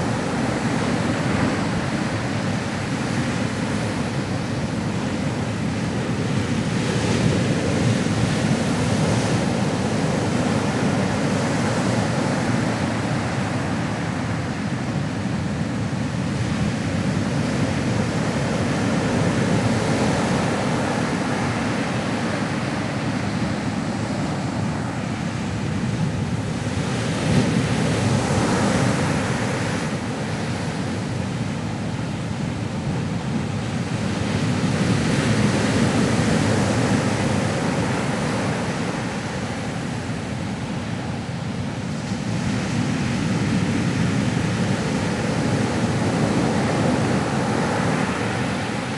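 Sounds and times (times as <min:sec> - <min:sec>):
ocean waves washing on shore: 0:00.0 - 0:48.9.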